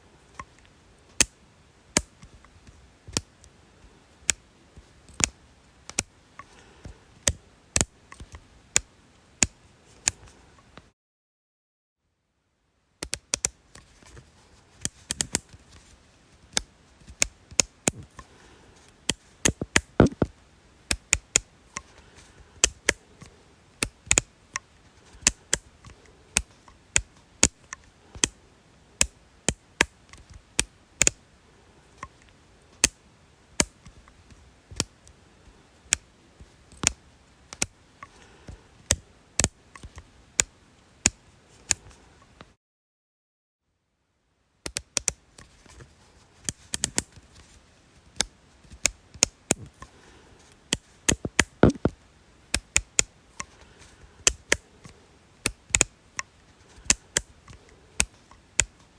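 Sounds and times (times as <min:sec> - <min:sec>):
sharp clicks: 0:19.1 - 0:20.3, 0:50.7 - 0:53.5.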